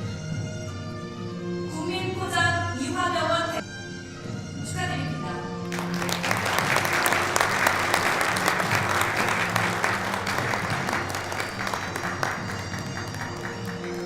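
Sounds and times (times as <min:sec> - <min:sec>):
background music: 0:00.0 - 0:14.0
audience applauding: 0:05.7 - 0:14.0.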